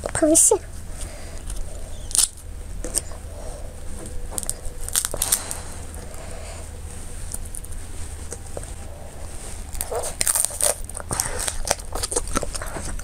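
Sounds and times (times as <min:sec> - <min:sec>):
chewing and crunching crab: 0:01.4 - 0:03.2, 0:04.2 - 0:06.2, 0:09.6 - 0:13.0.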